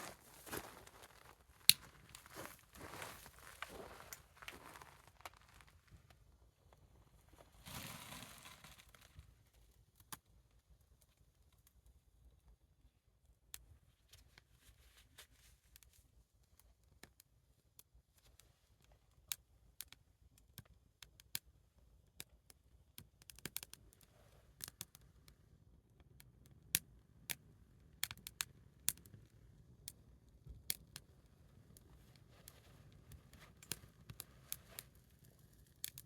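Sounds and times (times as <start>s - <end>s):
wood fire crackling: 0.0s - 5.8s, 30.6s - 36.0s
fire pops and snaps: 23.0s - 24.0s, 26.1s - 31.1s, 31.7s - 36.0s.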